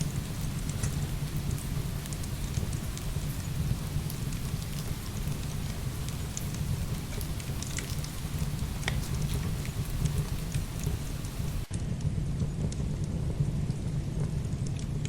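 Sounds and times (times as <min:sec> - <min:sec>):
heavy rain pouring: 0:00.0 - 0:11.7
wood fire crackling: 0:00.0 - 0:15.0.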